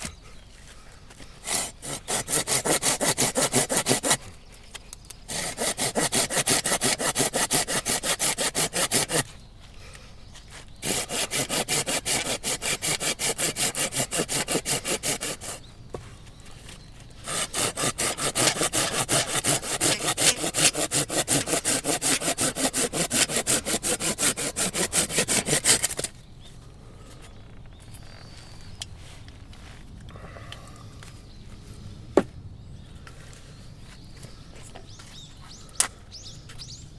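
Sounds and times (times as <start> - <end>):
hand saw cutting log: 1.4 - 4.4, 5.3 - 9.4, 10.7 - 15.7, 17.1 - 26.1.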